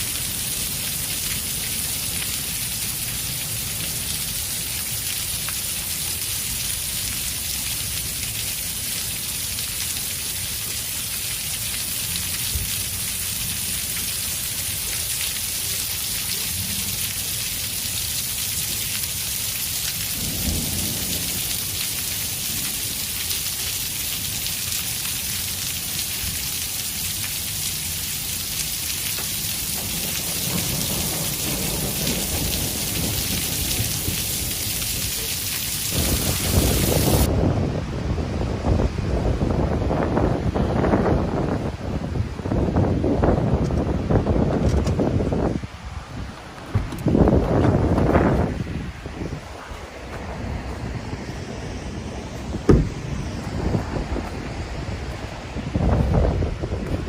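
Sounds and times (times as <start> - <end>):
hail and rain on vehicle: 14.8 - 37.3.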